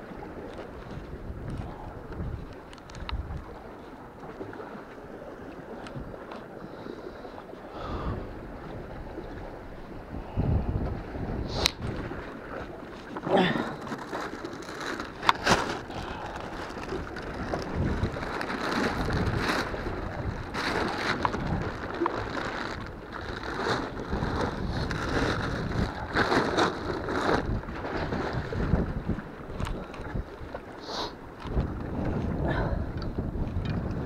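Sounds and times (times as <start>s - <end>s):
wind buffeting microphone: 0.0s - 4.6s, 7.7s - 34.0s
rustling: 13.6s - 27.6s.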